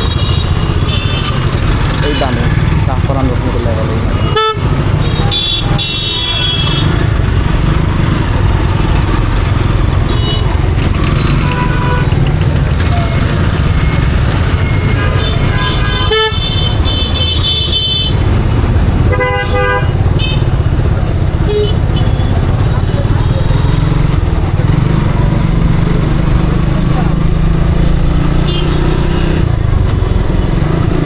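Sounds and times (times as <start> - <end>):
vehicle horns honking: 0.0 - 2.6, 4.0 - 7.1, 9.9 - 12.2, 12.8 - 18.2, 19.0 - 20.7, 21.4 - 24.2, 28.4 - 29.4
motorcycle engine rumble: 0.0 - 31.0.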